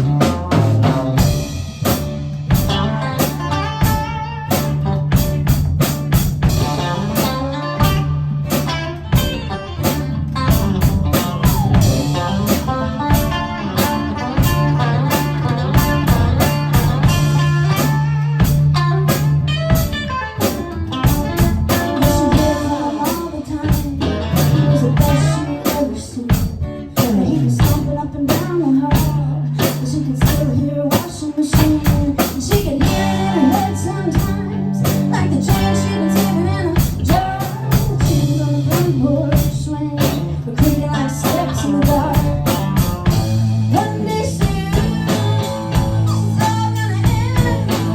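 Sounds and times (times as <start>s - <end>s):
guitar: 0.0s - 47.9s
live band playing blues: 0.0s - 47.9s.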